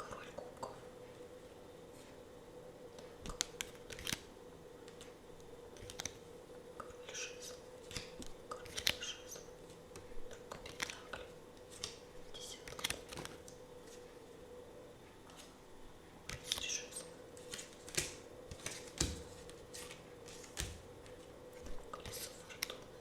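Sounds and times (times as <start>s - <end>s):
faint steady hum: 0.0s - 23.0s
cards tapping and clicking: 3.2s - 4.2s, 5.8s - 6.2s, 7.9s - 9.1s, 9.9s - 12.0s, 12.6s - 13.6s, 16.3s - 16.7s, 17.4s - 22.8s
card rustling: 5.8s - 6.2s, 10.3s - 14.0s, 17.3s - 22.8s.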